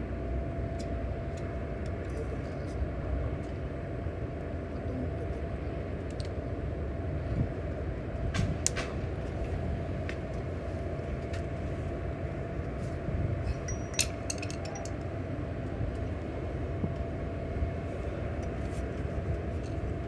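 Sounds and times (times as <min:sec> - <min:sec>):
metallic clinks and taps: 0:13.6 - 0:15.0.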